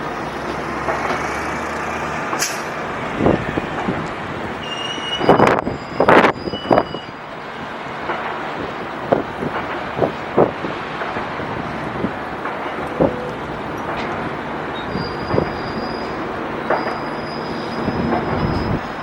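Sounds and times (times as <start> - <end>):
traffic rumble: 0.0 - 19.0
wind buffeting microphone: 2.2 - 7.0, 7.6 - 15.8.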